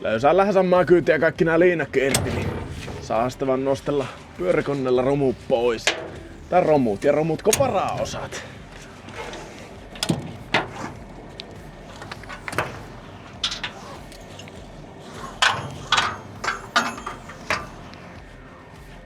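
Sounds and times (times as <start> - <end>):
ratchet straps clicking: 5.3 - 19.0.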